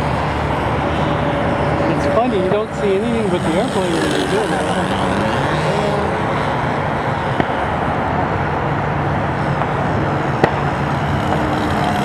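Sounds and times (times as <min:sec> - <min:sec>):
model airplane engine running: 0:02.3 - 0:06.8, 0:10.9 - 0:12.0.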